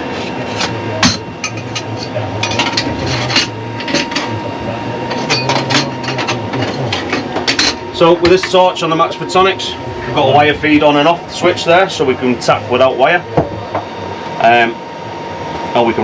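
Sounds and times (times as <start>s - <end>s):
low hum of machinery: 0.0s - 16.0s
metal tools clinking: 5.1s - 8.6s.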